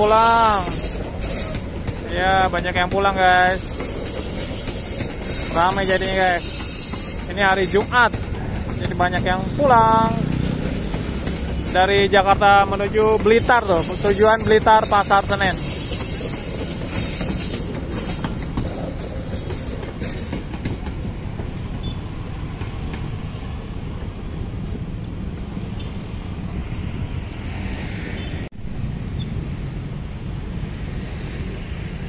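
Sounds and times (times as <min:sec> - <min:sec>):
wheels clicking over rail joints: 0:00.0 - 0:25.6
train rumble: 0:00.0 - 0:32.0.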